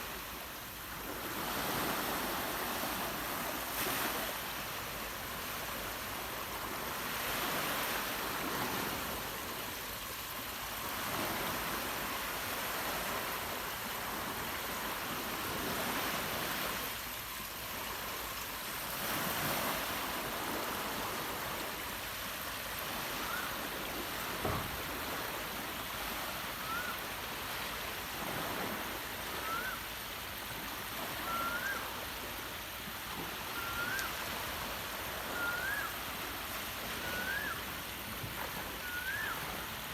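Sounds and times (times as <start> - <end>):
surf washing on beach: 0.0 - 39.9
bird whistling rising note: 26.6 - 27.0, 29.4 - 29.8, 31.2 - 31.9, 33.5 - 34.2, 35.3 - 36.0, 37.0 - 37.7, 38.8 - 39.7.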